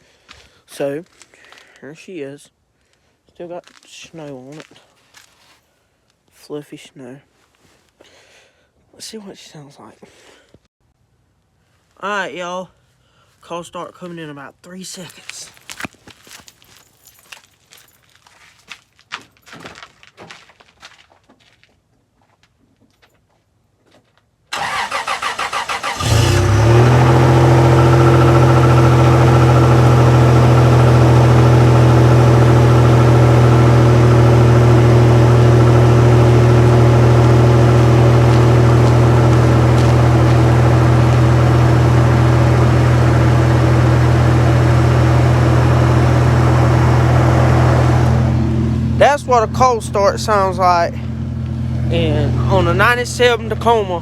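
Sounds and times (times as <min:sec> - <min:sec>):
starter motor cranking: 0:24.6 - 0:30.2
engine revving then idling: 0:24.6 - 0:54.0.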